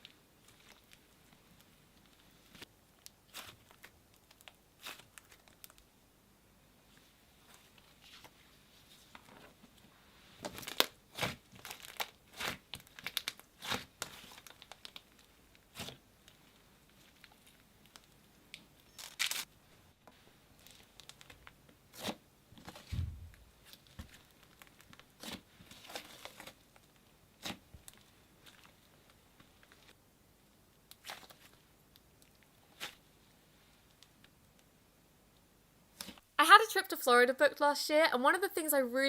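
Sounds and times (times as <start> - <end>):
slime squished by hand: 3.2 - 5.8.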